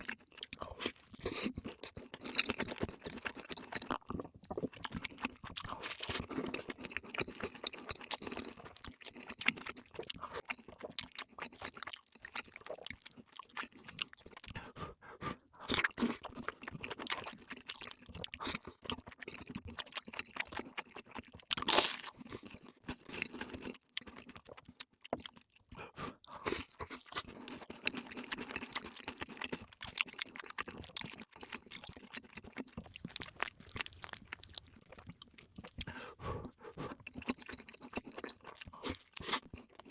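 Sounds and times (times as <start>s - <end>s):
crunchy bites and chewing: 15.6s - 25.5s, 26.4s - 39.9s.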